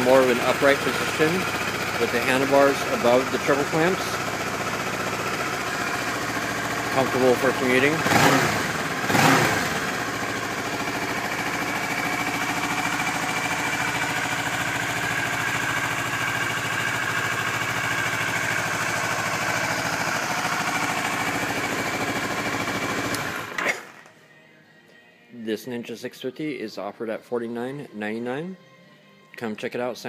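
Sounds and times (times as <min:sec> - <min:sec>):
motorcycle engine idling: 0:00.0 - 0:23.6.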